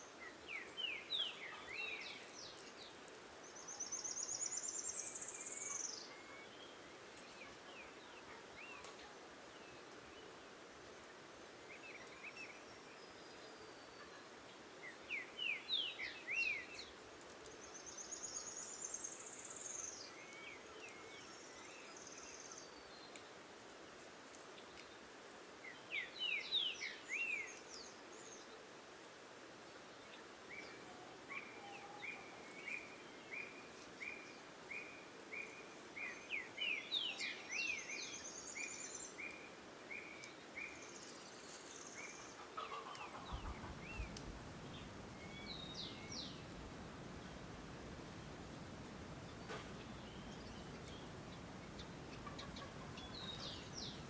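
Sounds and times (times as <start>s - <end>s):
birds chirping and trilling: 40.2s - 54.0s.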